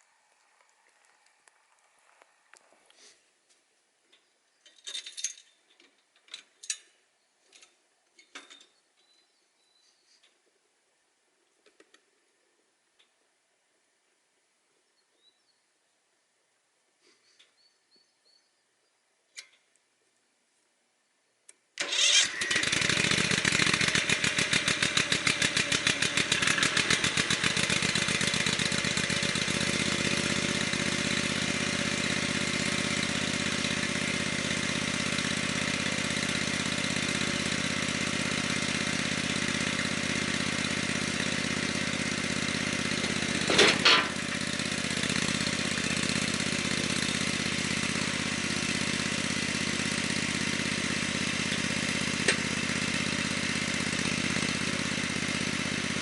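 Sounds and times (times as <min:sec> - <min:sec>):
small engine running: 0:21.8 - 0:56.0.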